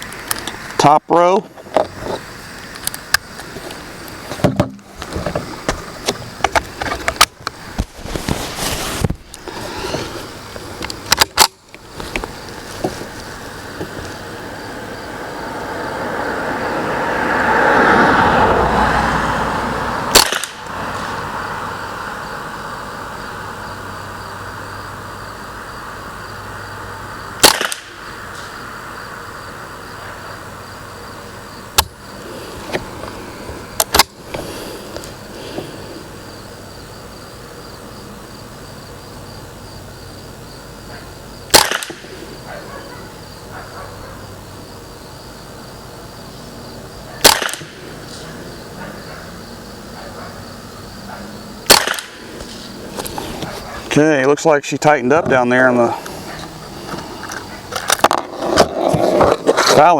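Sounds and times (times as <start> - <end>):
rifle shots: 20.1 - 20.6, 27.4 - 27.9, 41.5 - 42.0, 47.2 - 47.8, 51.6 - 52.2.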